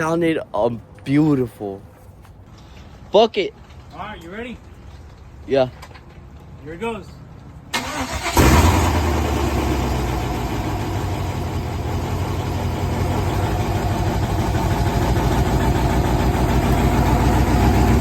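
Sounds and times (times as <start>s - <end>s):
loud engine idling: 7.8s - 18.0s.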